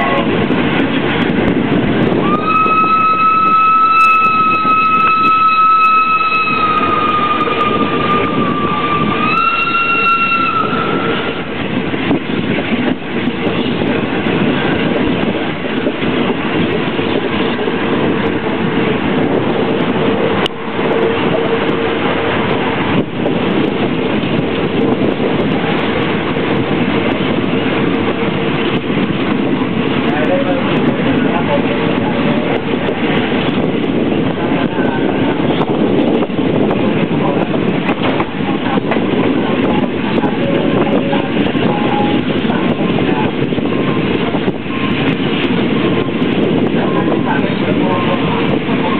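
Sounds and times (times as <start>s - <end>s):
train wheels rumbling on track: 0.0s - 48.9s
high horn tone: 2.2s - 11.4s.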